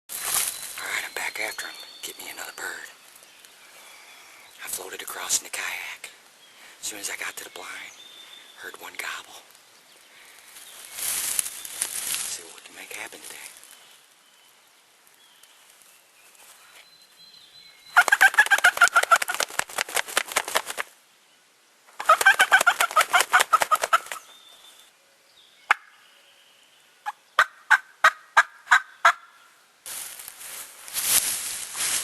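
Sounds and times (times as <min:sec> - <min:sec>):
turkey gobbling: 0:18.0 - 0:19.4, 0:22.0 - 0:24.2, 0:27.0 - 0:29.3
short turkey yelps: 0:27.0 - 0:29.3.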